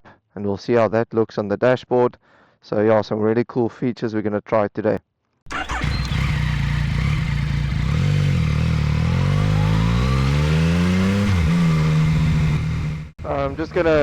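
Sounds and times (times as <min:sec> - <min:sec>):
motorcycle engine accelerating: 0:05.5 - 0:14.0.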